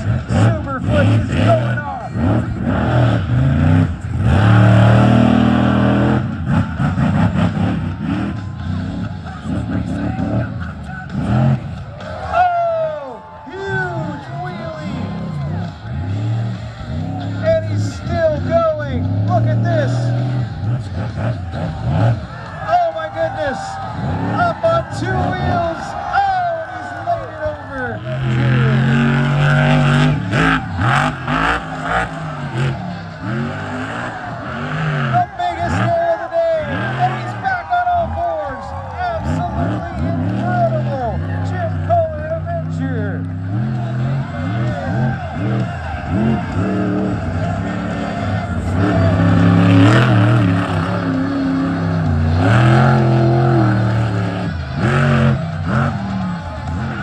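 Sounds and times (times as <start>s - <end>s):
monster truck engine revving: 0.0s - 57.0s
exhaust rasp: 39.1s - 57.0s.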